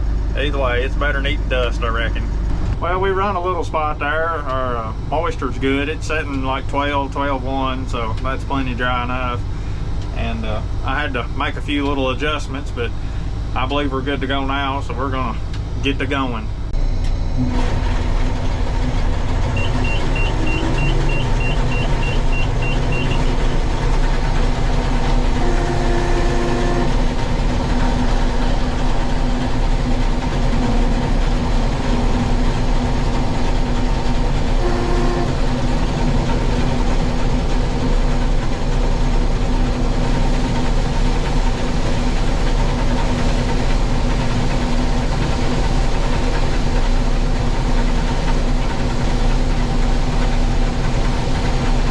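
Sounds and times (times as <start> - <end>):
combine harvester drone: 0.0 - 51.9
high rapid beeping: 19.5 - 24.3
mid-pitched tones: 19.5 - 35.9.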